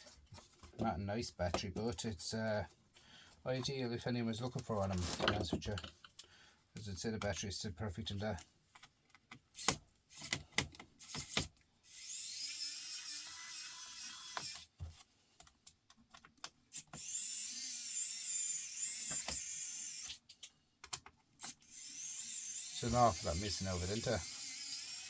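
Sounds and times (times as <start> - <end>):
electric screwdriver whirring: 11.0 - 14.7, 16.7 - 20.2, 21.4 - 25.0.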